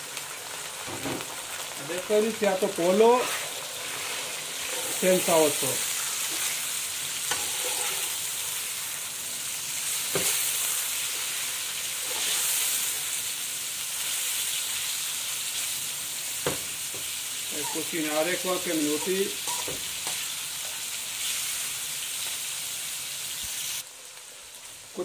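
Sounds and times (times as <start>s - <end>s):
chicken sizzling in hot oil: 0.0s - 25.0s
metal spoon knocking pan: 19.0s - 19.8s.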